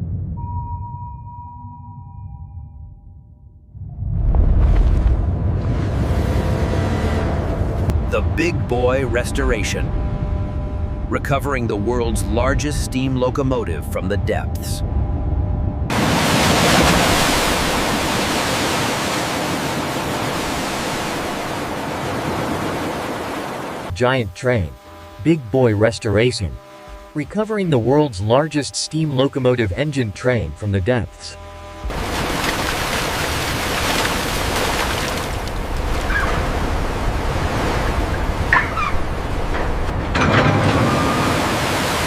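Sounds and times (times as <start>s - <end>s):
ocean surf rushing: 15.9s - 23.9s, 31.8s - 42.0s.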